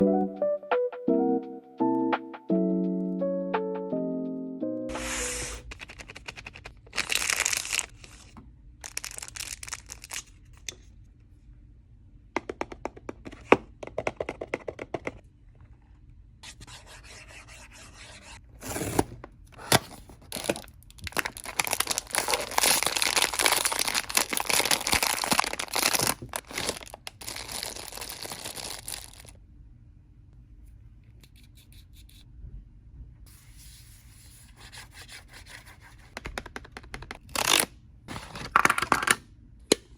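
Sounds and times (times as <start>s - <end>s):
packaging tearing and crinkling: 5.0s - 10.3s, 18.6s - 29.3s, 37.3s - 39.1s.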